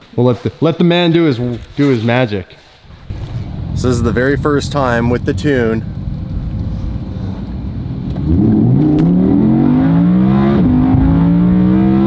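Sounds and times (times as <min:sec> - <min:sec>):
sports car engine accelerating: 0:02.9 - 0:12.0.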